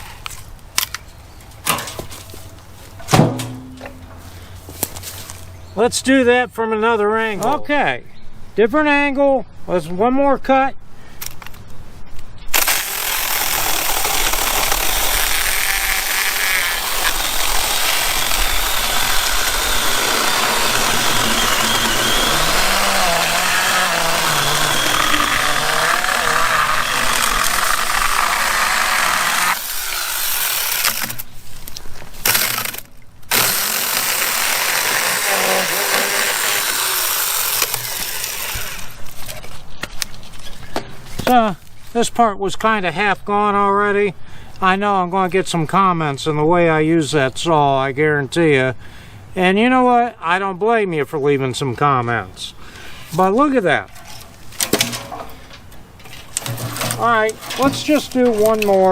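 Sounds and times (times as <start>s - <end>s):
chainsaw cutting through a log: 12.5s - 31.2s, 32.2s - 39.2s.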